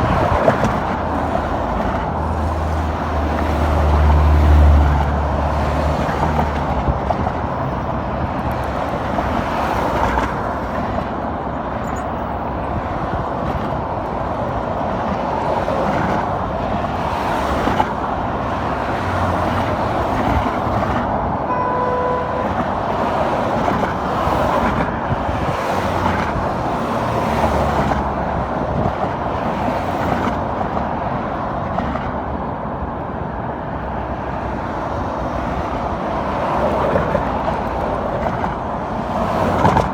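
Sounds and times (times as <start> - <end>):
car road and engine noise: 0.0 - 39.9
short beep: 21.5 - 22.6.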